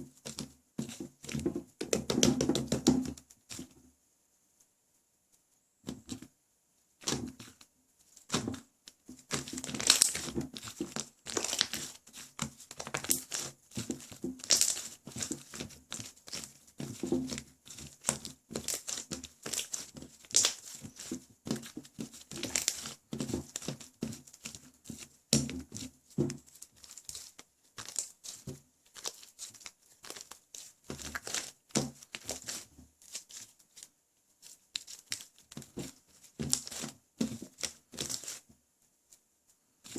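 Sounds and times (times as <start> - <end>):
slime squeezed by hand crackling: 9.3 - 16.4, 17.7 - 23.6.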